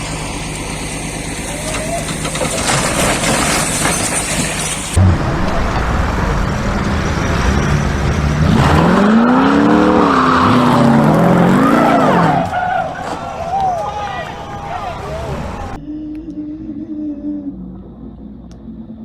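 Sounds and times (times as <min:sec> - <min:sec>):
engine revving: 0:05.0 - 0:12.6.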